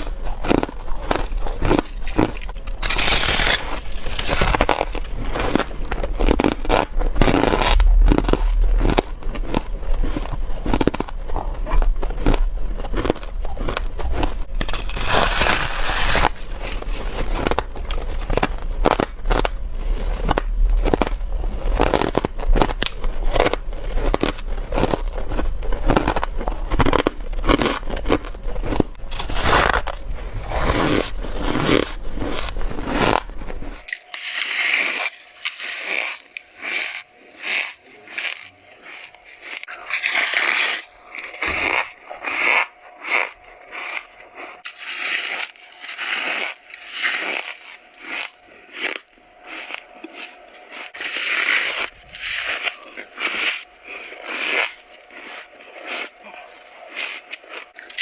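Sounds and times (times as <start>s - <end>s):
low background hum: 0.0s - 58.0s
person chewing frost crunching: 0.0s - 58.0s.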